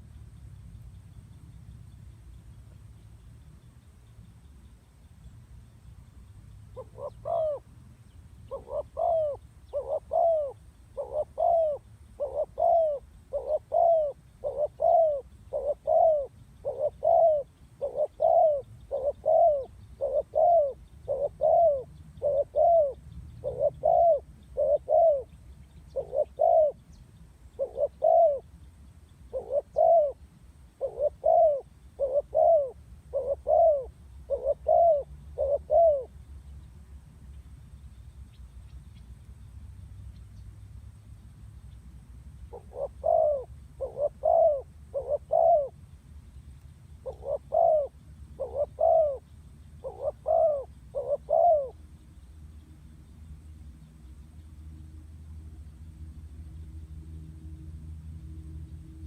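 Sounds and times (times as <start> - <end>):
dove cooing: 6.7 - 7.7, 8.5 - 26.8, 27.5 - 28.5, 29.3 - 30.2, 30.8 - 36.2, 42.5 - 45.8, 47.0 - 51.8.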